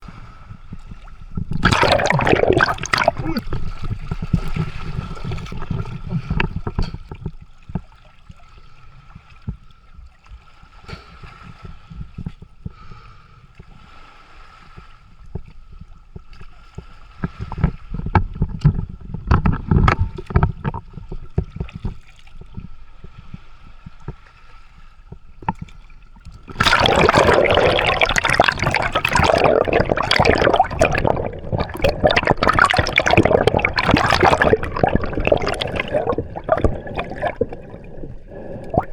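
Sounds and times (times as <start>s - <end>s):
sea water gurgling: 0.0s - 38.9s
churning water rushing: 1.5s - 6.5s, 26.5s - 38.9s.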